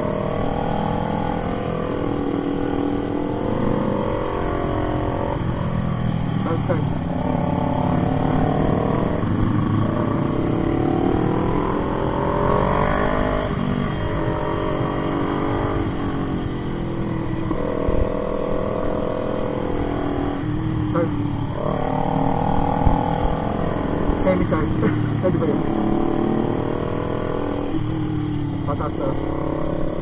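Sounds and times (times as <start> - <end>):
motorcycle engine shifting gears: 0.0 - 30.0.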